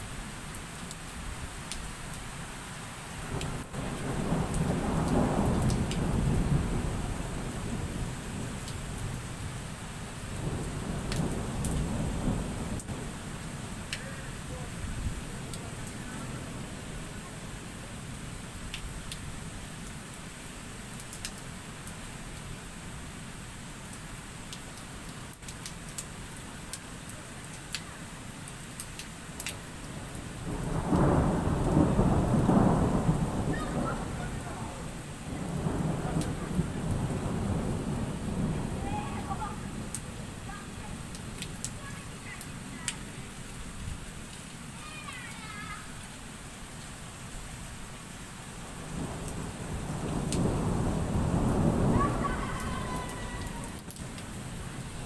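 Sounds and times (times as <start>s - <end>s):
heavy rain falling: 0.0s - 55.0s
raindrops ticking near microphone: 0.0s - 55.0s
rolling thunder rumble: 3.2s - 19.1s, 29.6s - 44.1s, 48.6s - 55.0s.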